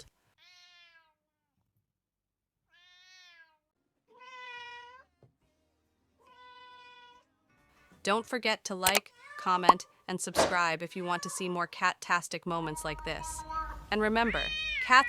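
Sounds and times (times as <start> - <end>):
cat meowing: 0.4 - 1.2, 2.7 - 5.1, 6.2 - 7.2, 12.8 - 15.0.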